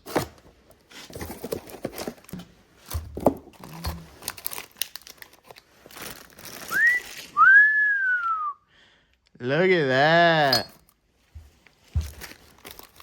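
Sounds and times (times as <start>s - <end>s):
packaging rustling and clicking: 0.0s - 7.4s, 11.5s - 13.0s
person whistling: 6.7s - 8.7s.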